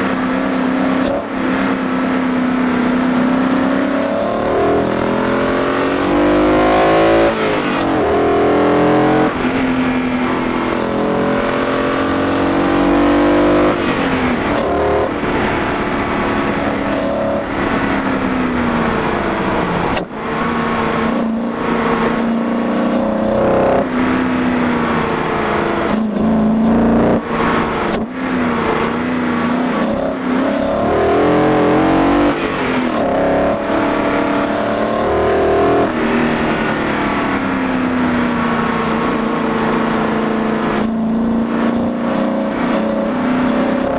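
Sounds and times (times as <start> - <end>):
car engine revving through gears: 0.0 - 43.9.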